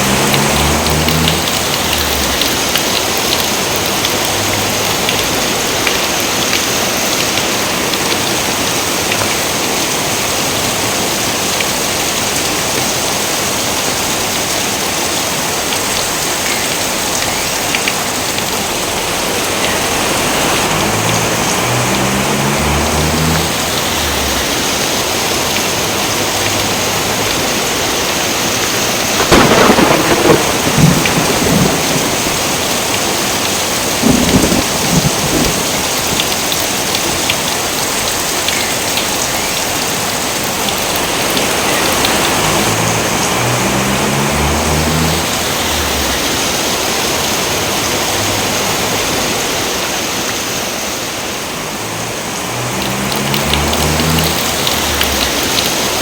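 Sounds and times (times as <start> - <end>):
crackling thunder claps: 0.0 - 9.9, 29.0 - 37.3, 52.8 - 56.0
heavy rain: 0.0 - 56.0.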